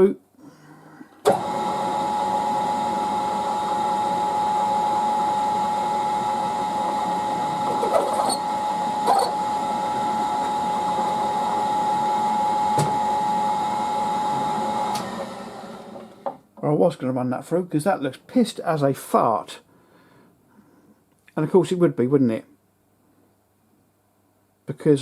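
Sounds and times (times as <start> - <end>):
milling machine whine: 1.2 - 16.4.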